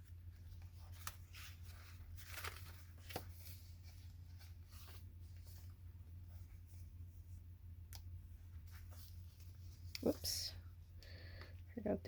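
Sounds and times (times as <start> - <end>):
paper pages rustling: 0.0 - 7.1
steady low hum: 0.0 - 12.0.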